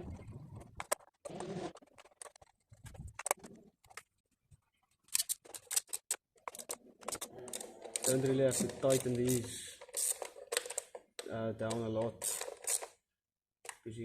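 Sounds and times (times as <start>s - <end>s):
clicks and knocks of parts handled: 1.8s - 4.2s, 4.9s - 13.0s.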